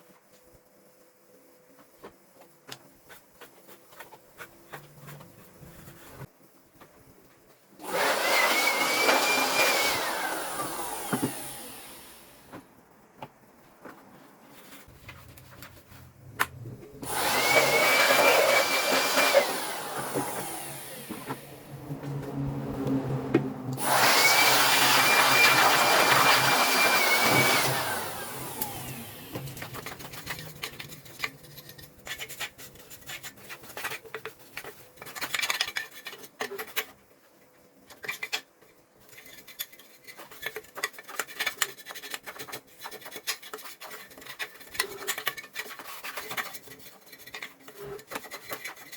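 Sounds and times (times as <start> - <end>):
power tool motor whine: 7.8 - 12.4, 17.0 - 30.5
parts clicking and rattling: 24.8 - 37.0, 37.9 - 48.9.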